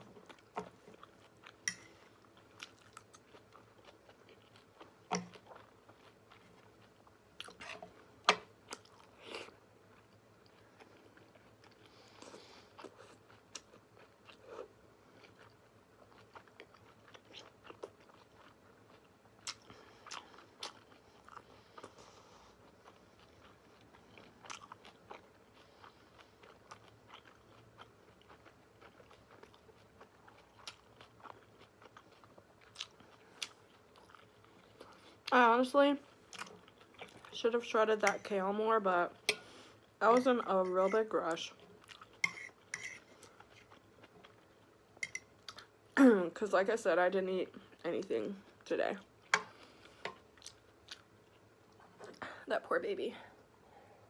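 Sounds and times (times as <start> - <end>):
chewing and biting pasta: 2.2 - 7.7, 9.9 - 35.3, 36.0 - 37.4, 41.5 - 44.8.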